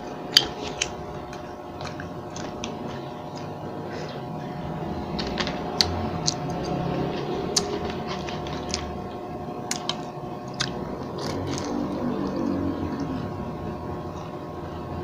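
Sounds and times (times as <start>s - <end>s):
low hum: 0.0s - 15.0s
chewing and mouth clicks: 0.3s - 3.6s, 5.1s - 13.2s.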